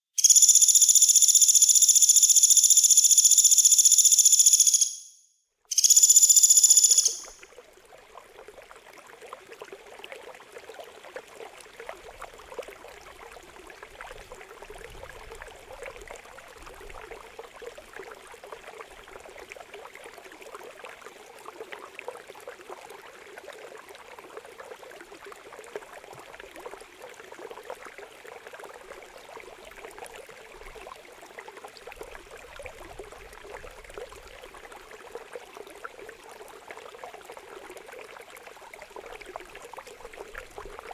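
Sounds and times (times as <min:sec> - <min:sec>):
water trickling and babbling: 0:05.6 - 0:40.9.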